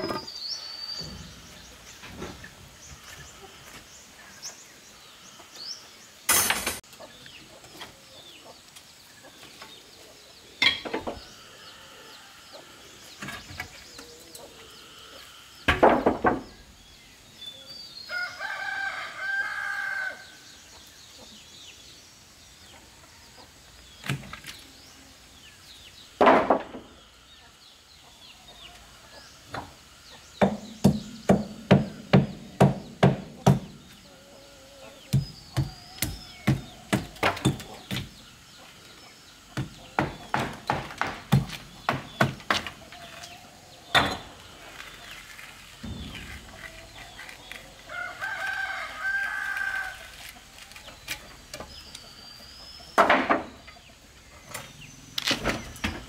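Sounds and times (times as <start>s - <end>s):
small birds chirping: 0.0s - 26.2s, 26.8s - 56.0s
rooster crowing: 18.1s - 20.3s, 47.9s - 50.1s.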